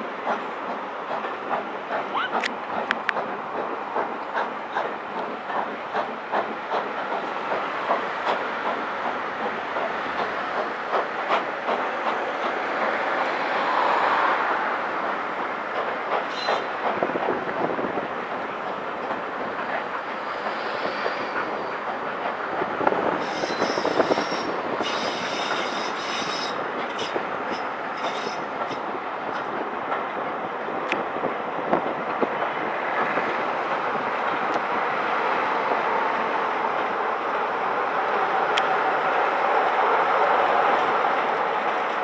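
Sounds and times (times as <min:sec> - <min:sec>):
train wheels clicking over rail joints: 0:00.0 - 0:13.7, 0:14.8 - 0:37.6
train wheels squealing: 0:16.2 - 0:16.7, 0:20.0 - 0:21.9, 0:23.2 - 0:28.8.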